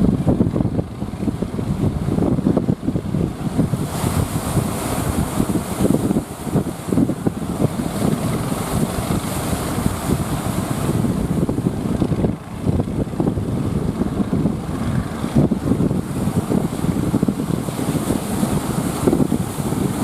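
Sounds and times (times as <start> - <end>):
strong wind buffeting microphone: 0.0 - 20.0.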